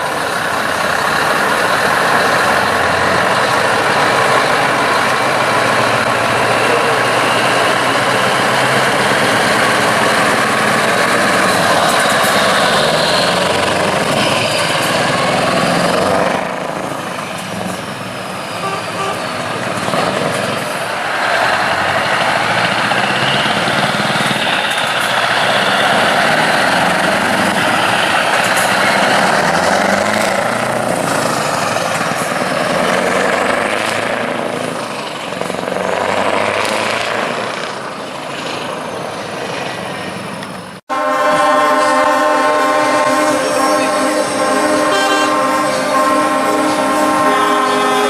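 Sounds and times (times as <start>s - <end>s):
truck engines rumbling: 0.0s - 48.0s
truck air horn: 18.5s - 19.5s, 40.9s - 48.0s.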